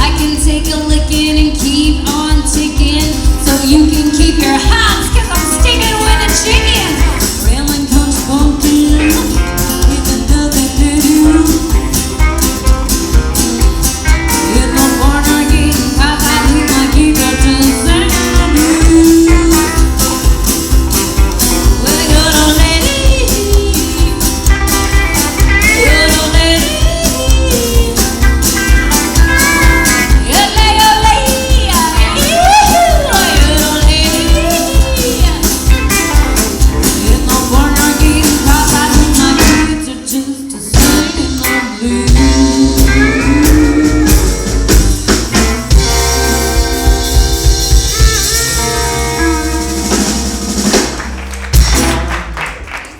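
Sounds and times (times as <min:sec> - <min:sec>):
live band playing country song: 0:00.0 - 0:52.9.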